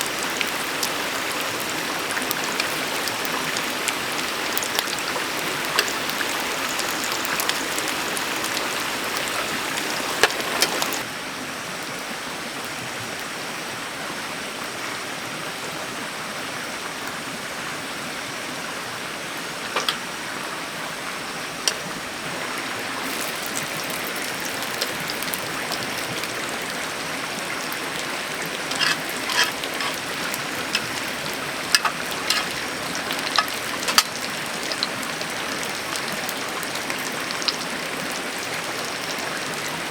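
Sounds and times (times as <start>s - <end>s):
water hissing: 0.0s - 11.0s, 21.6s - 35.9s
sharp water drips: 0.0s - 11.1s, 21.4s - 39.9s.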